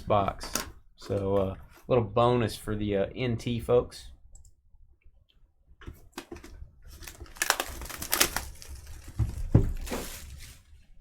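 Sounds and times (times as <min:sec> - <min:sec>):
packaging tearing and crinkling: 0:06.9 - 0:10.7.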